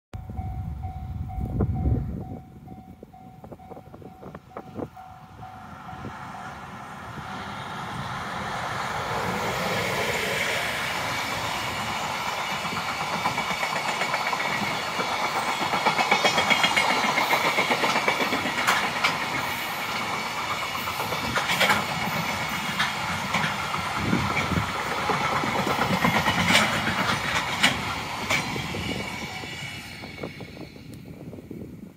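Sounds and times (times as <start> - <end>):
freight train passing: 0.2 - 31.9
wheels clacking over rail joints: 8.3 - 28.8.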